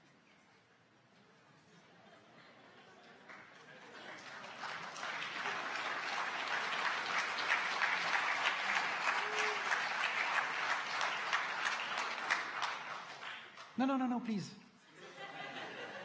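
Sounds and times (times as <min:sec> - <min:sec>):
congregation clapping: 0:03.0 - 0:14.5
brief cheer: 0:09.0 - 0:10.0.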